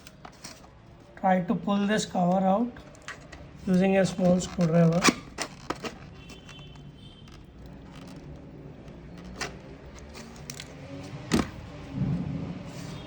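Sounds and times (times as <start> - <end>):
screwdriver scraping plastic: 2.3 - 11.6.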